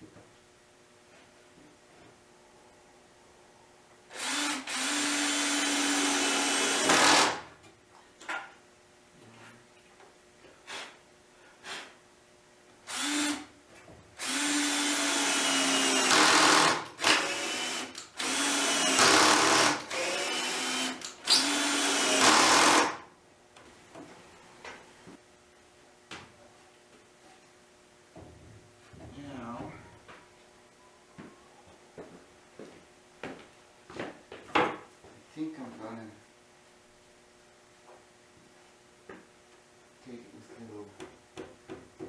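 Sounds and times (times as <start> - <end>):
electric drill running: 4.1 - 7.4, 12.9 - 13.5, 14.2 - 23.0.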